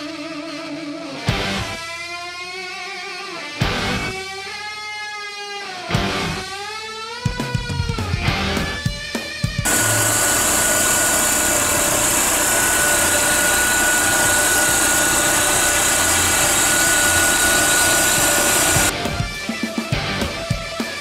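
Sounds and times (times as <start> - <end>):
rock music: 0.0 - 9.7, 18.8 - 21.0
car engine running: 9.7 - 18.9
high whine: 9.7 - 18.9.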